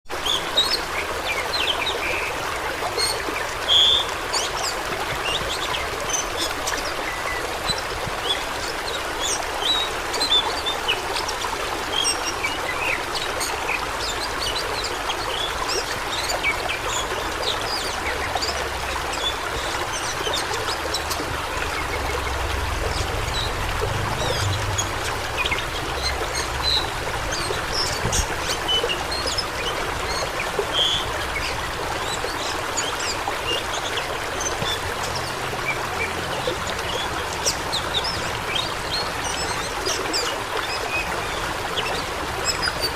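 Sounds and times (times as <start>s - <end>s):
water splashes and trickles: 0.0s - 42.9s
fast-flowing water rushing: 0.1s - 42.9s.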